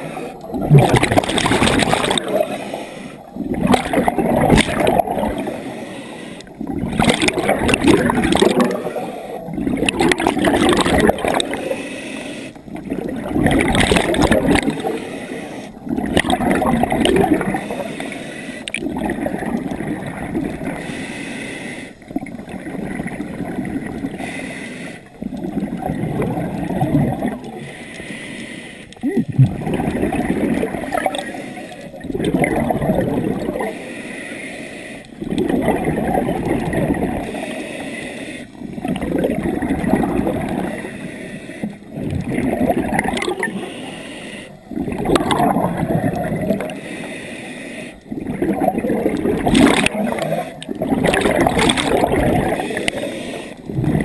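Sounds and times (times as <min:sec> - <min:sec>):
exhaled air bubbles underwater: 0:00.0 - 0:05.8, 0:06.4 - 0:11.8, 0:12.6 - 0:21.0, 0:22.0 - 0:24.3, 0:25.0 - 0:27.8, 0:29.0 - 0:33.8, 0:35.1 - 0:37.6, 0:38.5 - 0:43.9, 0:44.5 - 0:46.8, 0:48.0 - 0:54.0
diver inhaling through regulator: 0:01.8 - 0:04.1, 0:05.3 - 0:06.7, 0:10.7 - 0:12.8, 0:14.0 - 0:15.9, 0:17.4 - 0:18.8, 0:20.6 - 0:22.1, 0:24.0 - 0:25.2, 0:27.5 - 0:29.7, 0:30.9 - 0:32.0, 0:33.4 - 0:35.3, 0:37.2 - 0:38.7, 0:40.6 - 0:42.0, 0:43.2 - 0:44.8, 0:46.6 - 0:48.1, 0:51.6 - 0:54.0.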